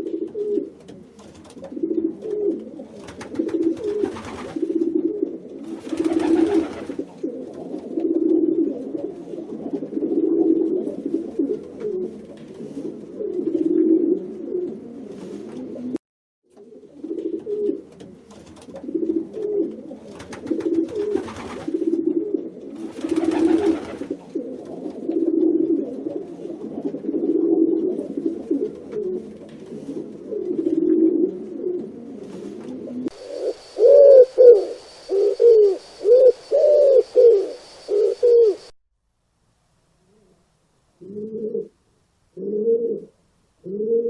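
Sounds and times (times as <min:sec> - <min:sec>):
pigeons cooing: 0:00.0 - 0:16.0, 0:16.6 - 0:38.7, 0:41.0 - 0:41.8, 0:42.4 - 0:44.0
faint high whine: 0:33.1 - 0:38.8.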